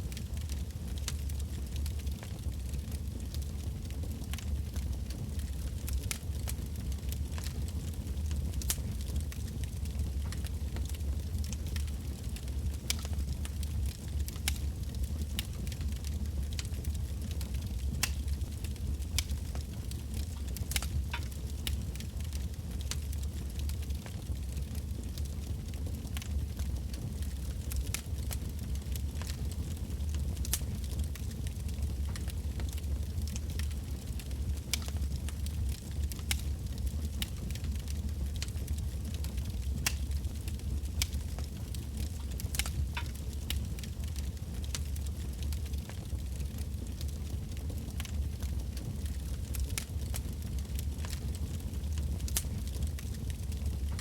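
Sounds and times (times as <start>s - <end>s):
firewood crackling and popping: 0.0s - 54.0s
low rumble of flames: 0.0s - 54.0s.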